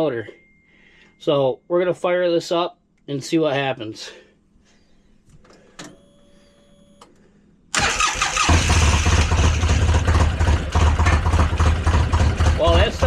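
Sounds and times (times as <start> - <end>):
engine cranking and idling: 7.8 - 13.0.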